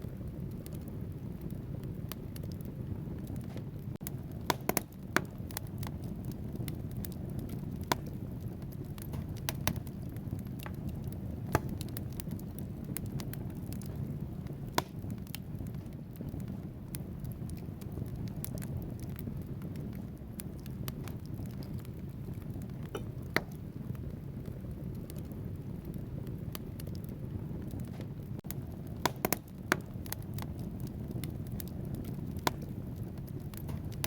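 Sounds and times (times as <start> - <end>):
fire flames rumbling: 0.0 - 34.0
logs crackling and popping: 0.0 - 34.0.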